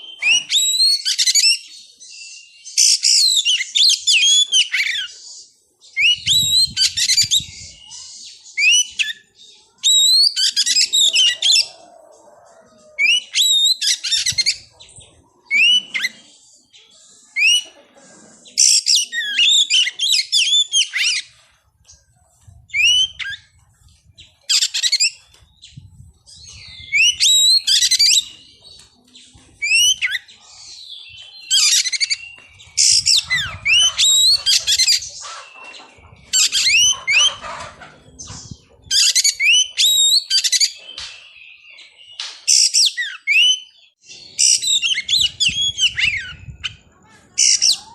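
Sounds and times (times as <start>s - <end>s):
bird singing whistled phrases: 42.5s - 46.8s.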